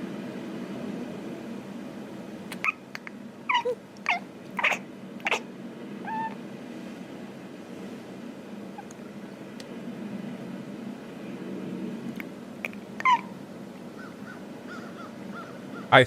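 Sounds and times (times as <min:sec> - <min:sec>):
steady low hum: 0:00.0 - 0:16.0
cat chirping: 0:02.5 - 0:06.4, 0:12.6 - 0:13.4.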